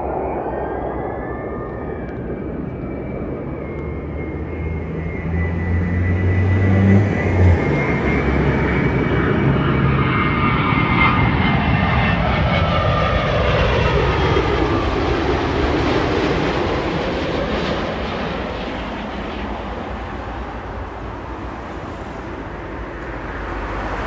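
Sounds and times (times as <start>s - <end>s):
jet airliner engine whine: 0.0s - 24.0s.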